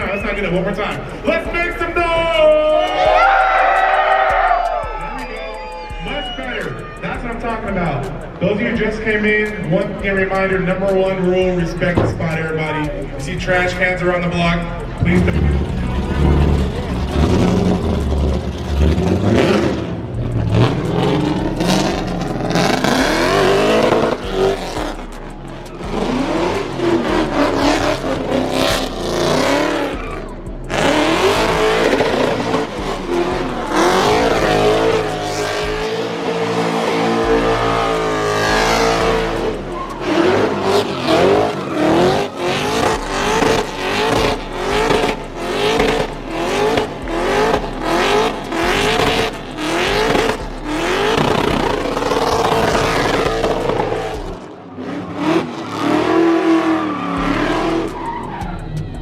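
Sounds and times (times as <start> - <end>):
tires squealing: 0.0 - 59.0
car engine revving hard: 7.0 - 58.4.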